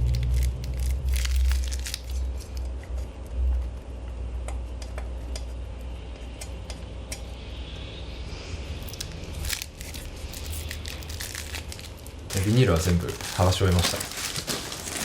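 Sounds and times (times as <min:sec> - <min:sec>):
crackles: 0:00.0 - 0:03.8, 0:08.7 - 0:15.0
low rumble: 0:00.0 - 0:04.4, 0:06.9 - 0:15.0
plastic film peeling off: 0:00.1 - 0:02.3, 0:09.0 - 0:15.0.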